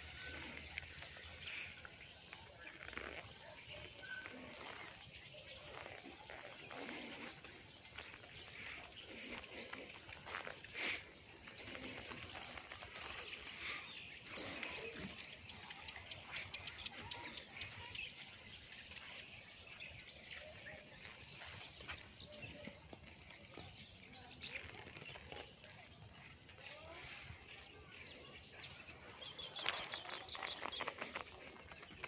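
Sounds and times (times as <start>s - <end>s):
birds chirping: 0.0s - 32.0s
faint outdoor background noise: 0.0s - 32.0s.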